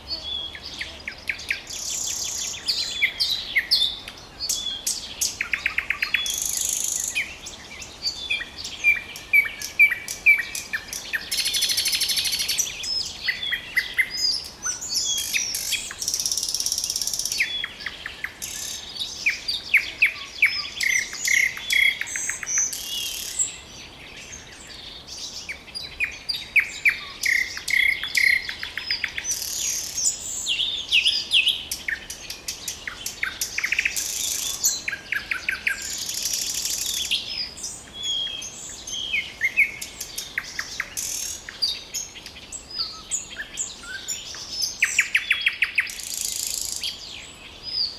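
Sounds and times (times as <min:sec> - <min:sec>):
nightingale singing: 0:00.0 - 0:47.9.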